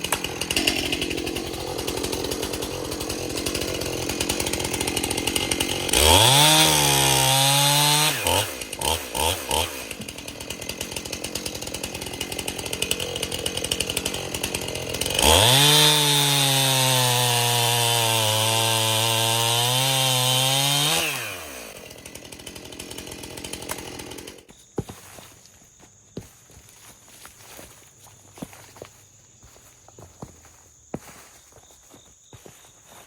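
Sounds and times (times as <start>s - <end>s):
chainsaw idling and revving: 0.0s - 24.9s.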